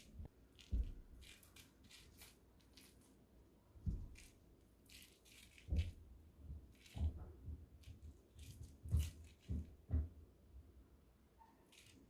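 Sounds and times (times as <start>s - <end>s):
soft thumps: 3.8s - 4.2s
light rustling and rattling: 3.8s - 10.2s.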